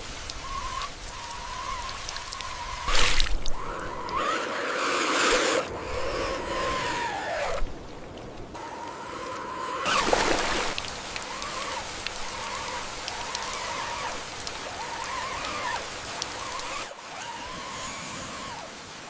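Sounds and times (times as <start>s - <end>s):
rain-like hiss and patter: 0.0s - 4.4s, 5.1s - 19.0s
small ticks: 0.2s - 4.3s, 10.7s - 16.9s
rc truck motor whining: 0.4s - 7.6s, 8.6s - 18.8s.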